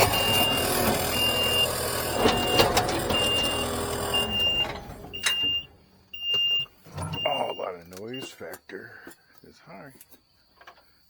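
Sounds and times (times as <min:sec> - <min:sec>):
clanks and knocks: 0:00.0 - 0:05.6
engine running: 0:00.0 - 0:06.0
backup alarm beeping: 0:00.0 - 0:08.5.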